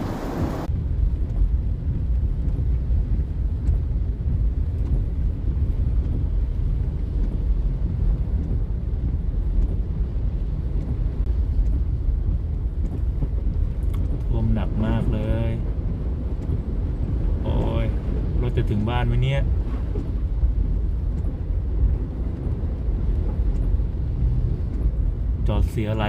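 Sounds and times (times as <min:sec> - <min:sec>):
hissing storm noise: 0:00.0 - 0:00.7
car driving rumble: 0:00.0 - 0:26.0.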